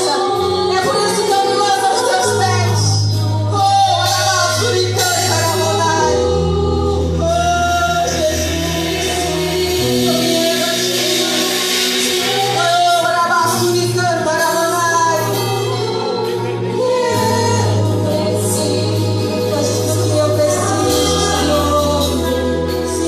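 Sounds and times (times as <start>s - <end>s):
gospel singing over a band: 0.0s - 23.0s.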